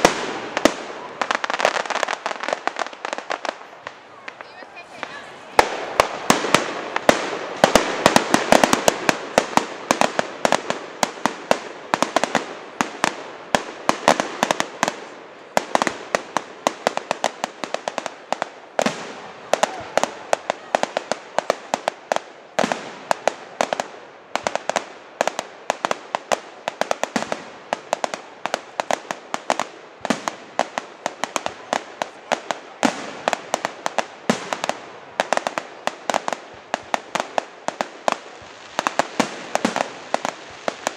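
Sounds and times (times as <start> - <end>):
fireworks cracking and popping: 0.0 - 40.9
loud fireworks bangs: 0.0 - 40.9.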